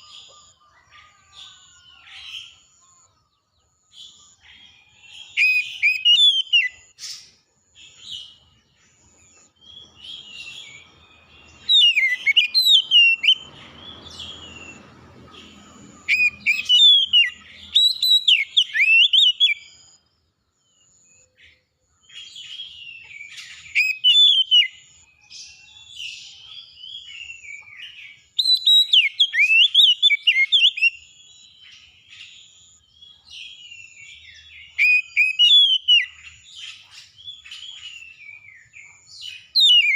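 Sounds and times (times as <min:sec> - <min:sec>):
songbird whistling and warbling: 0:05.2 - 0:07.3, 0:09.6 - 0:19.8, 0:22.2 - 0:32.4, 0:33.5 - 0:39.9.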